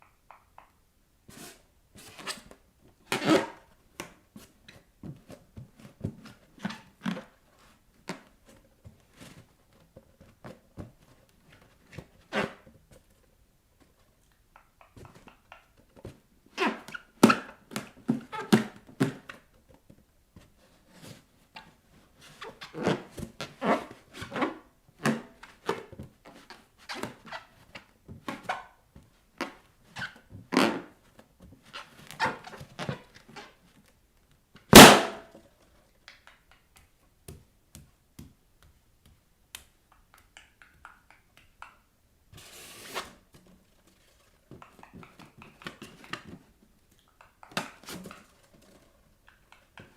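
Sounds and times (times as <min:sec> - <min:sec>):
rubber balloons squeaking: 0:16.5 - 0:18.7, 0:29.9 - 0:33.7.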